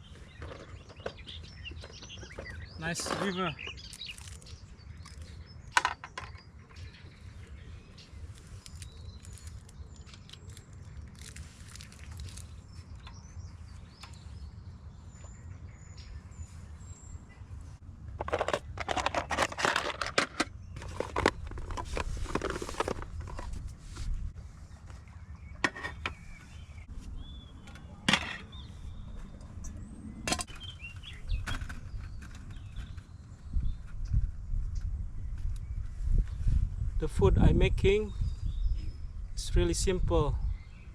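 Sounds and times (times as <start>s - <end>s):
small birds chirping: 0.0s - 17.9s, 20.5s - 40.9s
clattering and rustling: 18.2s - 23.6s.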